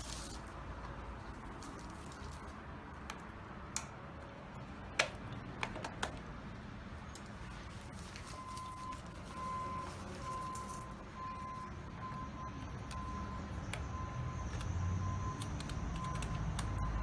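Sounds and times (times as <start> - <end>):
clicks and knocks of plastic parts: 4.9 - 6.3.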